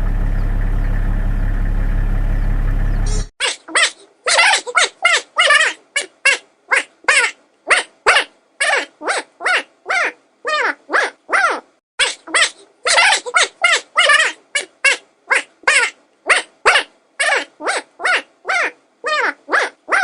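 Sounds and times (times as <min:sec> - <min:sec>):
dog barking: 0:10.9 - 0:11.6, 0:16.3 - 0:18.8, 0:19.5 - 0:20.0.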